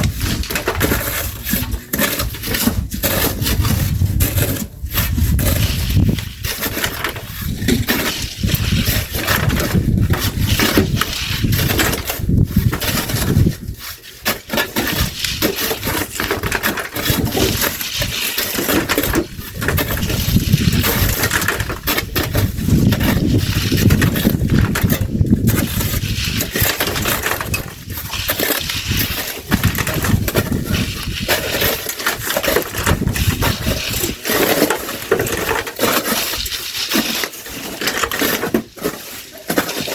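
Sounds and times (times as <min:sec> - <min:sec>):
shovels digging sand and gravel: 0:00.0 - 0:39.9
stones clinking: 0:16.0 - 0:34.2.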